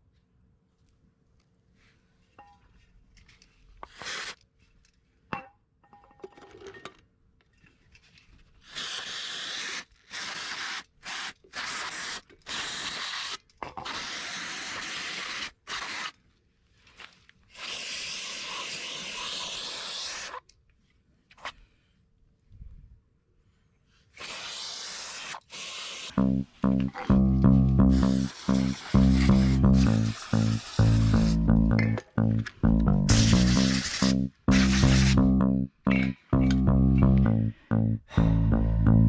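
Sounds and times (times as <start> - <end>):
hissing spray bursts: 24.2 - 26.2, 27.9 - 31.4, 33.1 - 35.2.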